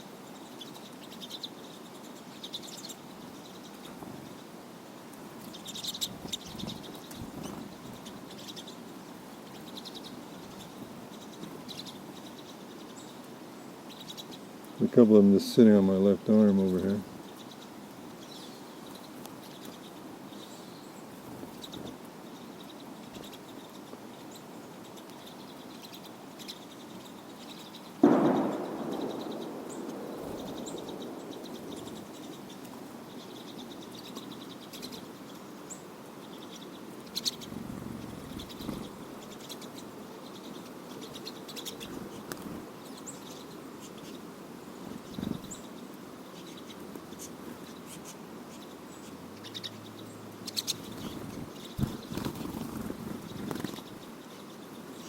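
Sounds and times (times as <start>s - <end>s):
bird chirps: 16.7s - 44.2s, 45.0s - 55.0s.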